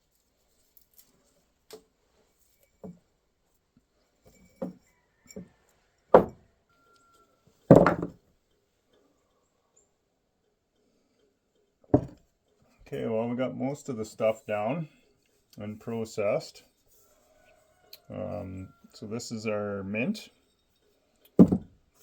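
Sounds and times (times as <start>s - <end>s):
objects knocking on hard surface: 6.2s - 6.4s, 7.7s - 8.2s, 12.0s - 12.2s, 21.4s - 21.8s.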